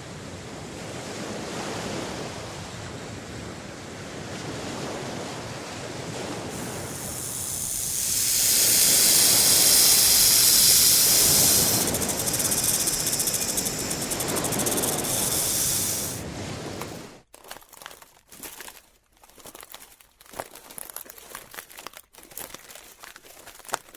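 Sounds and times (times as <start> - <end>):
hiss: 6.5 - 17.1
crackling clicks: 6.6 - 16.2.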